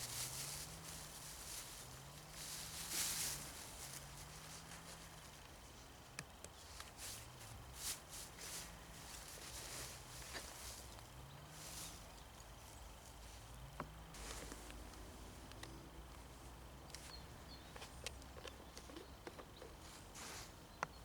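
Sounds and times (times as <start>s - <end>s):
footsteps crunching in snow: 0.0s - 5.4s, 6.8s - 12.2s, 14.1s - 14.8s.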